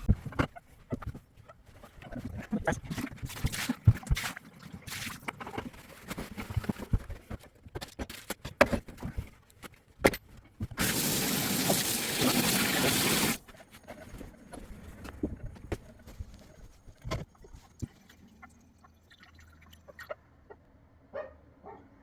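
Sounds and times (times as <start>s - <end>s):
water running from faucet: 10.8s - 13.4s.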